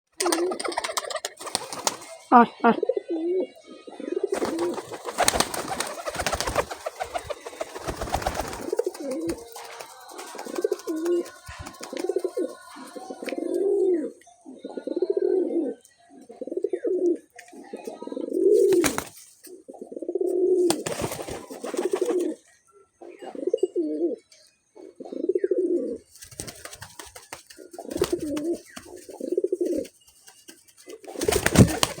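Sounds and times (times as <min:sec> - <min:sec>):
pigeon cooing: 0:00.2 - 0:19.0, 0:30.9 - 0:32.0.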